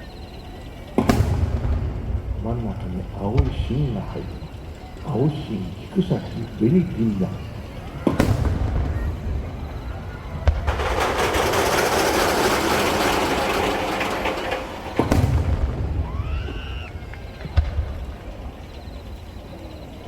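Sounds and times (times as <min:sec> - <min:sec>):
firework crackling: 0:00.0 - 0:20.0
firework bangs: 0:00.4 - 0:20.0.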